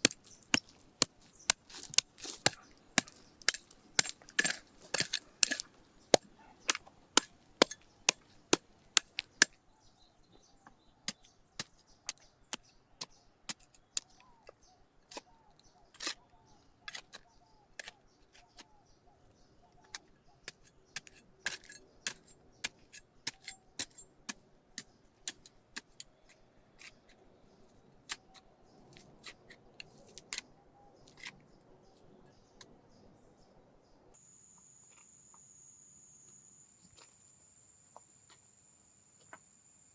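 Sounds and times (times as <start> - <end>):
hand tool knocking: 0.0 - 9.4
birds chirping: 0.0 - 22.6.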